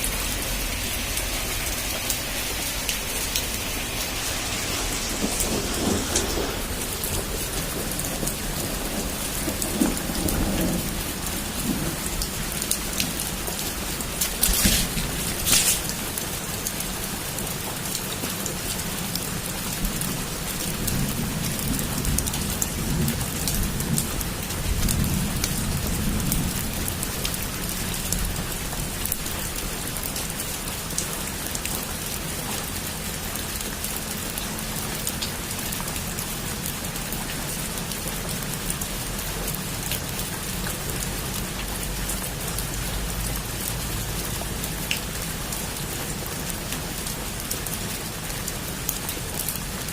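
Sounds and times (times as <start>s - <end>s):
low rumble of thunder: 0.0s - 16.2s, 19.3s - 29.3s
heavy rain falling: 0.0s - 49.9s
sharp crack of thunder: 3.0s - 12.6s.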